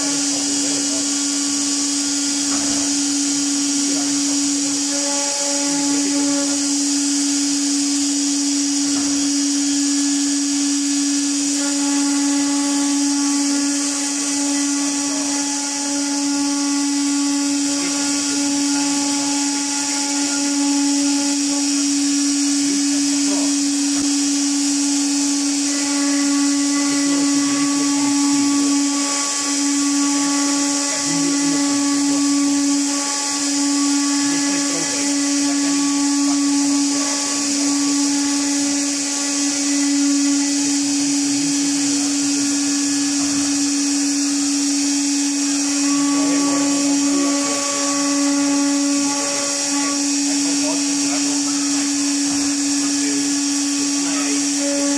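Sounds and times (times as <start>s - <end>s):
woodworking machine motor hum: 0.0s - 54.9s.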